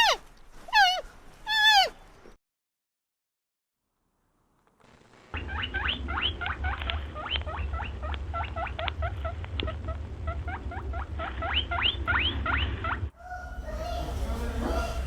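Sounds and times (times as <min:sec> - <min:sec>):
small animal squeaking: 0:00.0 - 0:02.0, 0:05.4 - 0:15.0.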